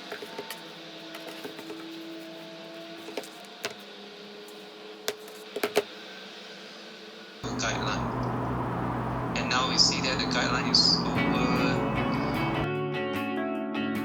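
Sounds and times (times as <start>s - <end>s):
faint room hum: 7.4s - 12.7s.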